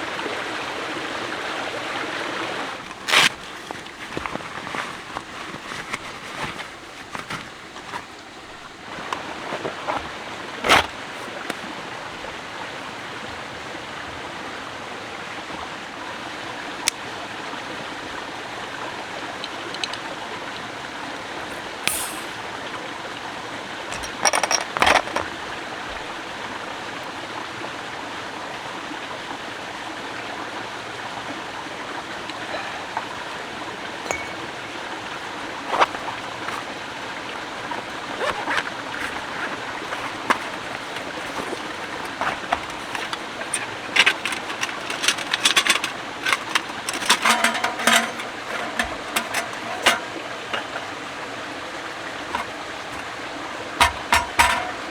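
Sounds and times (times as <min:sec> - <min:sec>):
sharp clicks and knocks: 0:23.9 - 0:25.3, 0:38.2 - 0:50.9, 0:52.3 - 0:53.1, 0:53.8 - 0:54.9.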